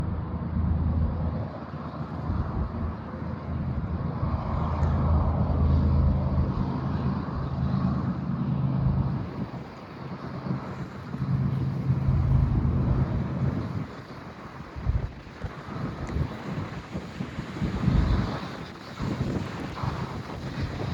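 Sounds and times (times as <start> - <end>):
diesel locomotive engine droning: 0.0 - 16.2
wind buffeting microphone: 0.0 - 20.9.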